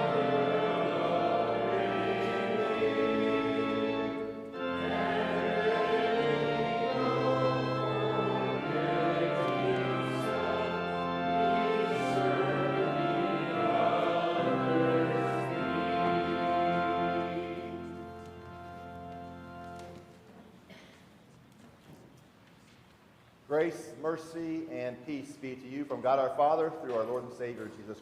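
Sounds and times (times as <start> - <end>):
group singing a hymn: 0.0 - 19.4
held chords: 0.0 - 20.1.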